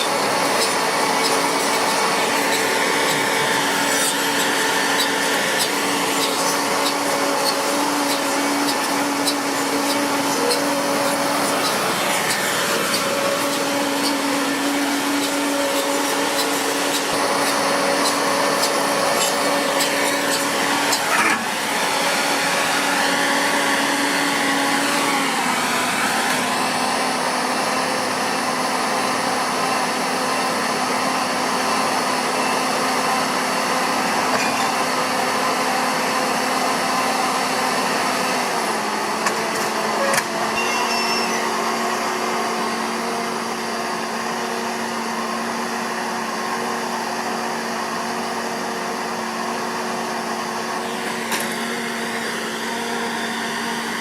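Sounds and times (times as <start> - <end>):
machine whirring hum: 0.0 - 27.3.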